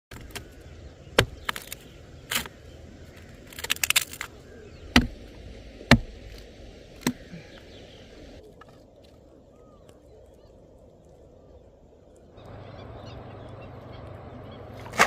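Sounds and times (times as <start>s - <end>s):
sharp knocks and clicks: 4.9s - 5.2s.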